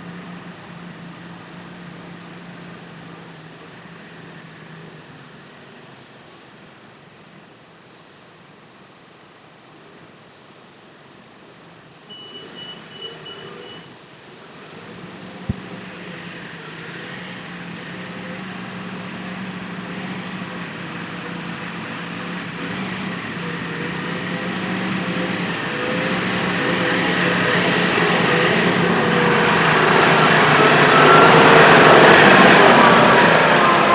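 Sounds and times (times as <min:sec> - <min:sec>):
tractor engine running: 0:14.5 - 0:33.9.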